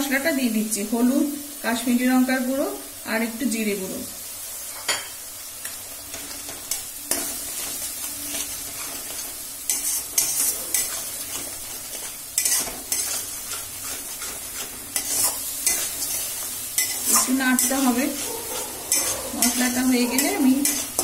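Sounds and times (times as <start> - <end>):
paste sizzling in oil: 0.0 - 21.0
metal spatula scraping a pan: 6.1 - 21.0.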